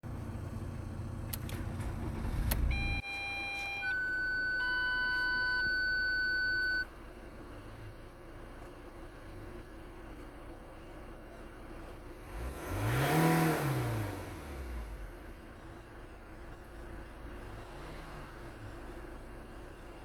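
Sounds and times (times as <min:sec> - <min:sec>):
diesel engine idling: 0:00.0 - 0:03.0
electronic beep tones: 0:02.7 - 0:06.9.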